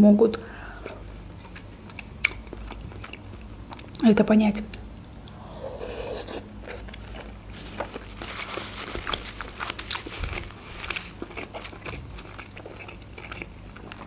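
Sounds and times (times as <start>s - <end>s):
person biting and chewing food: 5.2s - 14.0s.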